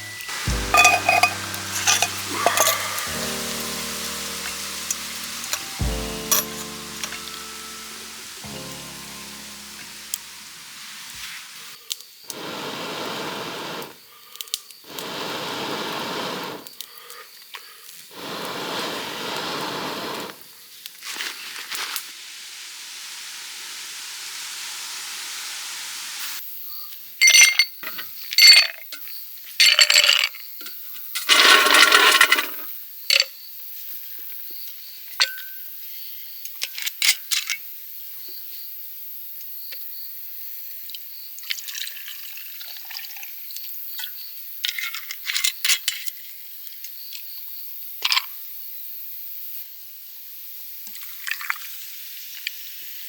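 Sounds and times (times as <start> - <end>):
liquid pouring gush: 0.0 - 11.7, 21.0 - 26.4
faint high hiss: 0.0 - 14.0, 18.2 - 26.8
cookware clinking and knocking: 0.7 - 3.1.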